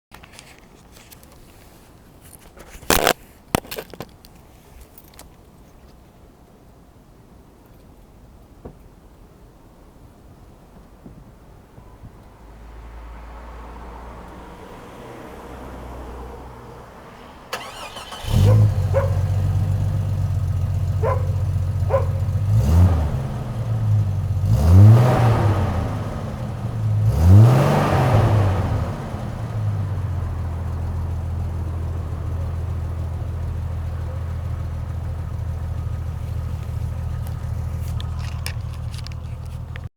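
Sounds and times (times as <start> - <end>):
car engine starting and revving: 12.7 - 39.9.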